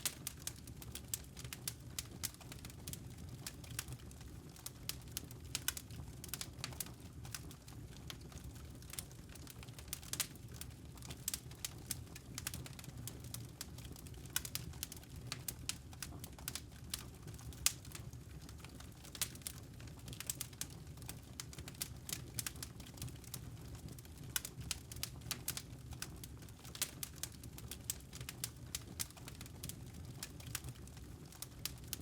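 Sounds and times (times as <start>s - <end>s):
low rumble of burning logs: 0.0s - 32.0s
wood fire crackling: 0.0s - 32.0s.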